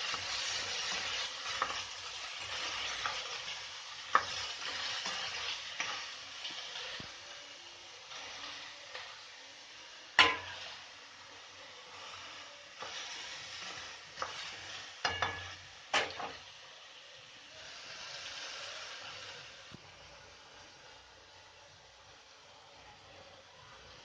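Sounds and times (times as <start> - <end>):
food sizzling in a pan: 0.0 - 24.0
metal spoon clanking on pan: 10.2 - 10.6, 15.0 - 16.4.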